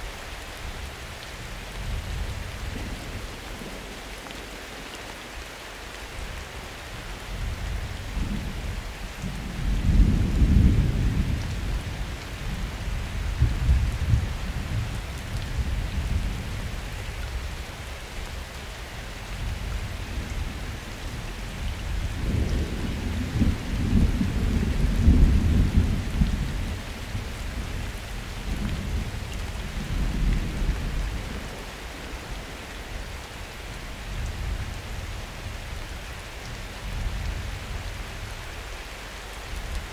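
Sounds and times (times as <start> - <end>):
steady rain: 0.0 - 39.9
thunder rumbling: 21.6 - 32.4.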